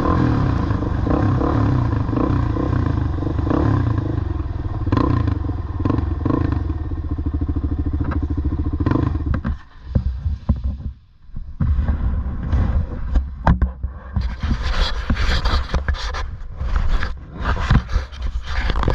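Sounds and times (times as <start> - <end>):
off-road motorcycle engine running: 0.0 - 11.5.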